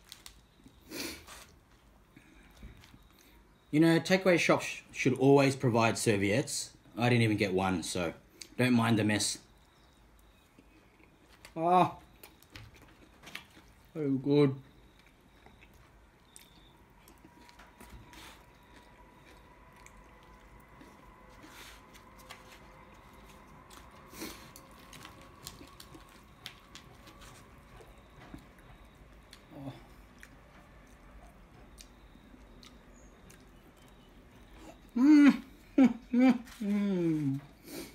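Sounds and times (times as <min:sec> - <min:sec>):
faint chewing: 0:09.6 - 0:14.0, 0:14.6 - 0:37.9.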